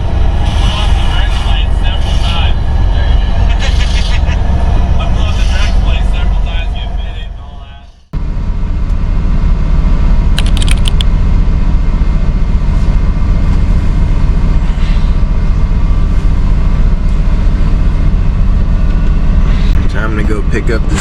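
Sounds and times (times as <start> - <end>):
truck diesel engine running: 0.0 - 21.0
sharp clicks: 10.4 - 11.1.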